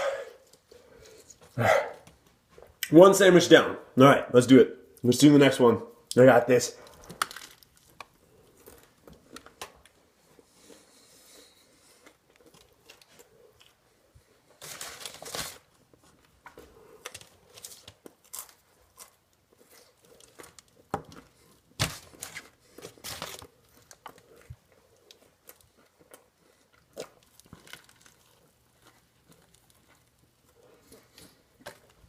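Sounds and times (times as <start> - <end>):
chewing and crunching food: 6.0 - 32.0
paper wrappers crinkling and tearing: 14.4 - 32.0.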